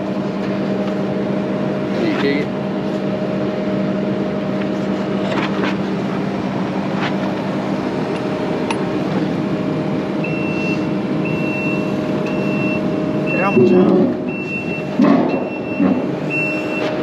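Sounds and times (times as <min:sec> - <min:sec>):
heavy equipment engine running: 0:00.0 - 0:17.0
reversing alarm beeping: 0:10.2 - 0:17.0.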